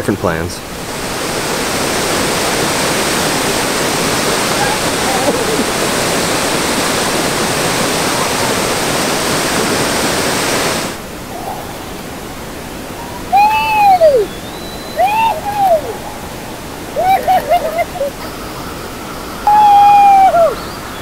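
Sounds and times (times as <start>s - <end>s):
waterfall rushing: 0.6s - 21.0s
person yelling: 4.5s - 5.8s, 13.0s - 14.3s, 15.0s - 16.0s, 19.5s - 20.6s.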